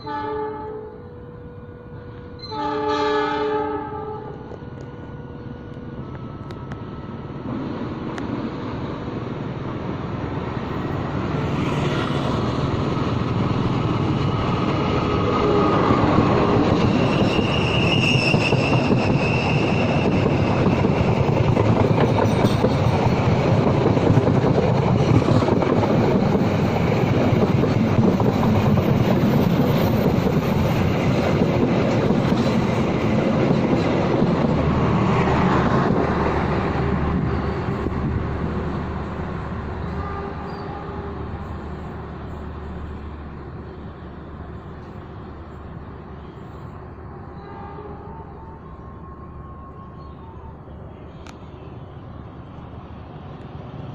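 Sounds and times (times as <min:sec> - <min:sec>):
train wheels rumbling on rail: 0:03.5 - 0:48.1
high wheel squeal: 0:14.9 - 0:21.0.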